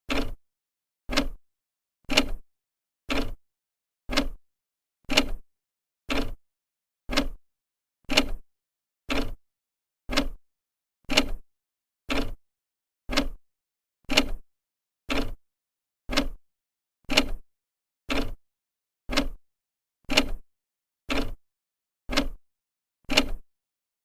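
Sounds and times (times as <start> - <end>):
clock ticking: 0.1 - 0.4, 1.1 - 1.4, 3.1 - 3.4, 4.1 - 4.4, 6.1 - 6.4, 7.1 - 7.4, 8.1 - 8.4, 9.1 - 9.4, 10.1 - 10.4, 11.1 - 11.4, 12.1 - 12.4, 13.1 - 13.4, 15.1 - 15.4, 16.1 - 16.4, 17.1 - 17.4, 18.1 - 18.4, 19.1 - 19.4, 20.1 - 20.4, 21.1 - 21.4, 22.1 - 22.4, 23.1 - 23.4.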